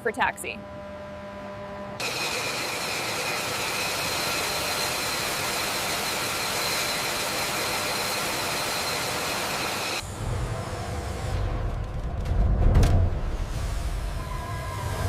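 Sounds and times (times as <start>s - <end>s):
machine hiss with high whine: 2.0s - 11.7s
low rumble: 10.0s - 15.0s.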